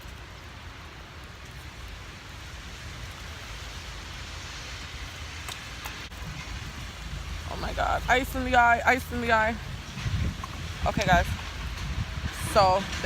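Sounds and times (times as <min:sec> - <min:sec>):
low rumble: 0:06.1 - 0:13.0.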